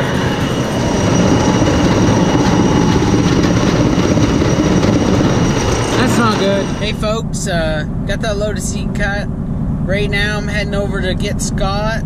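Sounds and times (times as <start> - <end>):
heavy machinery rumbling: 0.0 - 11.5.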